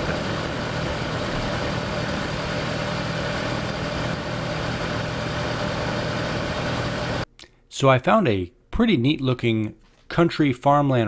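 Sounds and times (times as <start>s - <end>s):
motorcycle engine cruising: 0.0s - 7.2s.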